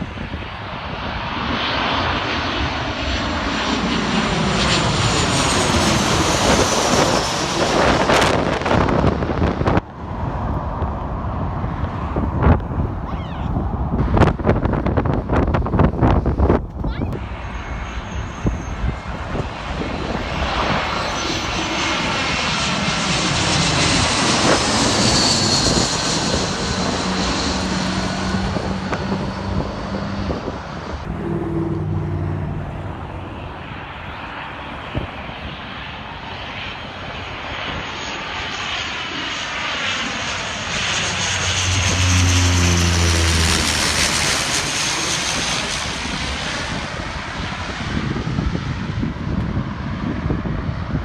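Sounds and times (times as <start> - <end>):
airplane engines running: 0.0 - 51.0.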